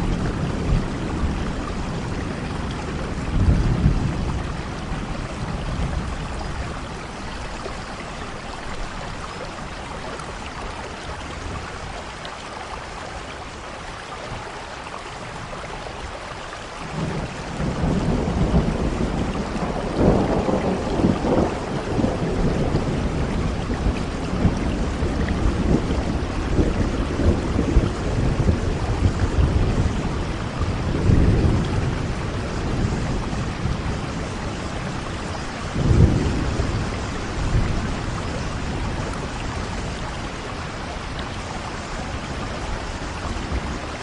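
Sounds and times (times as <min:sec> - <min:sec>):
rolling thunder: 0:00.0 - 0:07.7, 0:16.9 - 0:44.0
heavy rain: 0:00.0 - 0:44.0.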